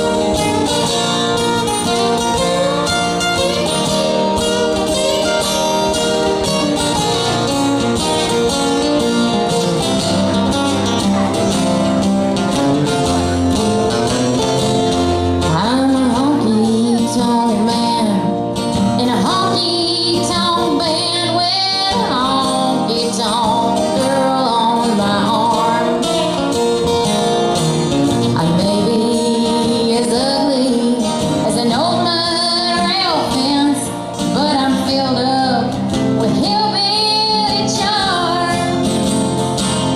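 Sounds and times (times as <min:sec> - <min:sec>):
acoustic guitar: 0:00.0 - 0:39.9
country band playing: 0:00.0 - 0:39.9
woman singing: 0:15.4 - 0:26.9, 0:28.0 - 0:39.8.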